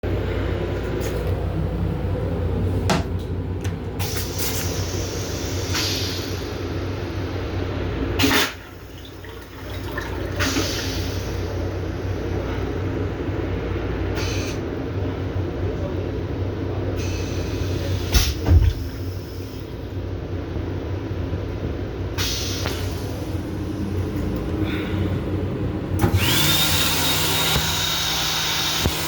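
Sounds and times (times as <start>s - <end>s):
low rumble of moving train: 0.0s - 29.0s
toilet flushing: 3.9s - 13.0s, 22.1s - 29.0s.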